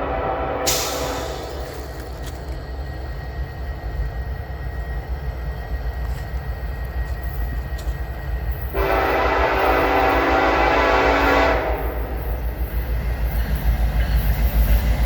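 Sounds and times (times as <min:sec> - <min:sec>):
locomotive air horn: 0:00.0 - 0:01.4, 0:08.7 - 0:12.2
freight train rumbling: 0:00.0 - 0:15.0.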